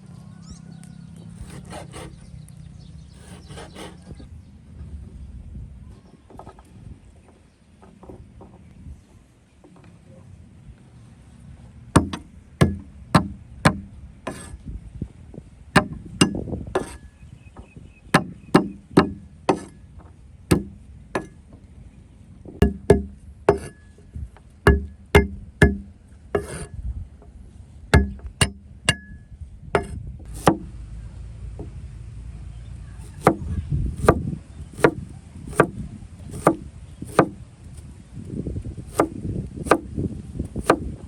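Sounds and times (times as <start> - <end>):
knife chopping on wooden board: 3.2 - 4.0, 12.0 - 14.5, 20.5 - 21.3, 22.6 - 23.8, 24.7 - 25.8, 26.4 - 26.7, 28.0 - 29.1, 29.8 - 30.6, 33.0 - 33.4, 34.0 - 37.4, 38.9 - 39.9, 40.5 - 40.9.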